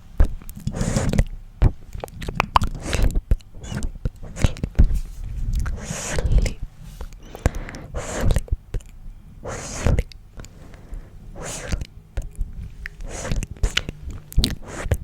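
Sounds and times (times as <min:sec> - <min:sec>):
mouth clicks: 0:00.2 - 0:04.9, 0:05.5 - 0:15.0
breathy whispering: 0:05.6 - 0:15.0.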